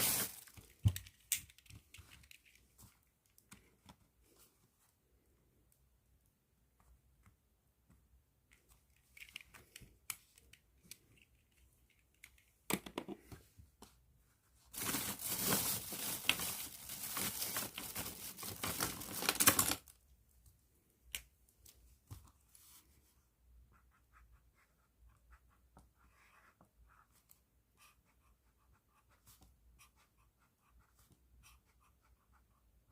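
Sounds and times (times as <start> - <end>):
plastic bag crinkling: 0.0 - 0.8, 14.7 - 19.9.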